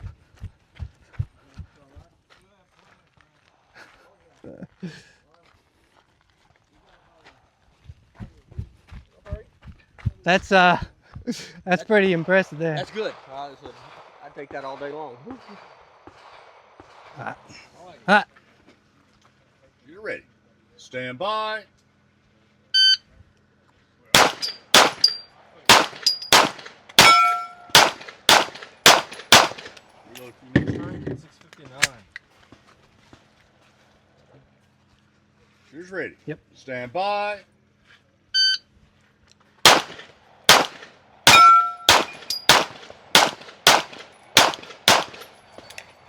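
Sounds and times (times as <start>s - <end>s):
pistol shots: 24.2s - 29.8s, 39.7s - 45.7s
bullets ringing on steel targets: 24.2s - 30.3s, 39.7s - 45.8s
metallic ring: 24.3s - 25.3s, 25.9s - 27.8s, 41.3s - 42.6s.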